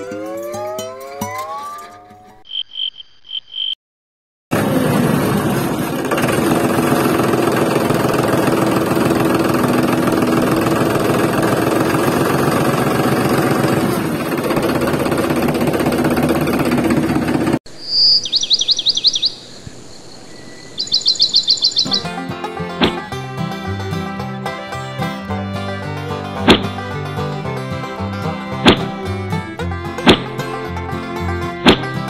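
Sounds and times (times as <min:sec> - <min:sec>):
small petrol engine running: 0:04.5 - 0:17.6, 0:25.2 - 0:32.0.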